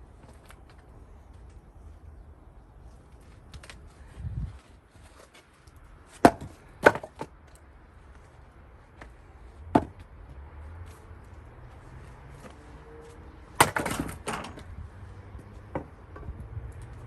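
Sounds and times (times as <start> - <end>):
axe splitting wood: 6.2 - 7.3, 13.6 - 14.3.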